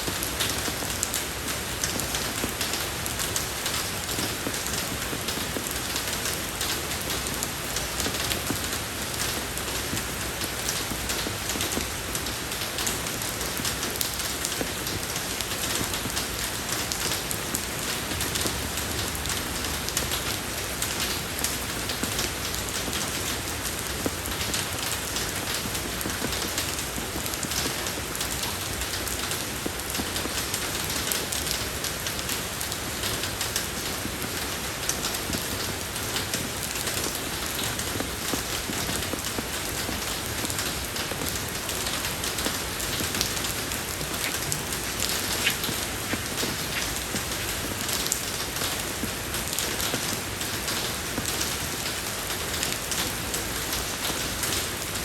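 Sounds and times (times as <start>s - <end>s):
rain falling on a road: 0.0s - 55.0s.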